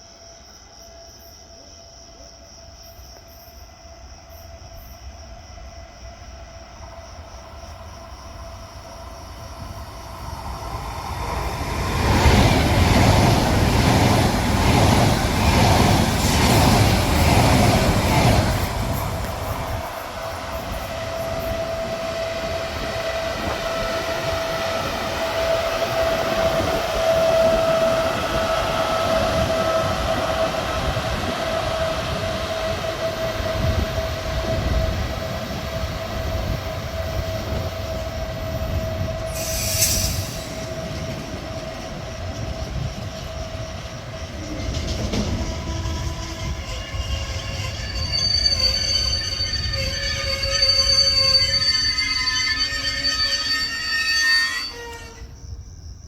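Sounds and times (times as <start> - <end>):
train rumble: 1.2 - 56.0
short hiss: 39.3 - 40.7.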